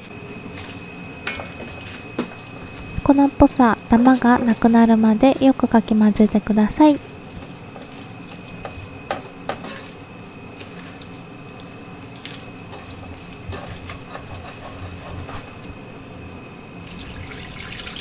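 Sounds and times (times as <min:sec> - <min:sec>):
onions and chicken sizzling: 0:07.0 - 0:15.8
wooden spatula scraping pot: 0:12.7 - 0:15.7.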